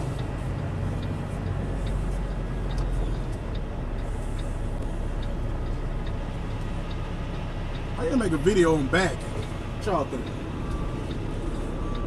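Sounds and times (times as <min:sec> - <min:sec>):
faint regular tick: 0:00.0 - 0:07.9, 0:10.2 - 0:11.3
diesel truck engine running: 0:00.0 - 0:12.0.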